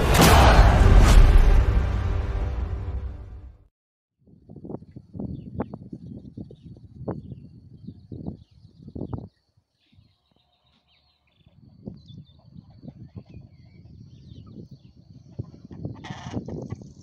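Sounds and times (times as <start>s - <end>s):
small birds chirping: 4.7s - 17.0s.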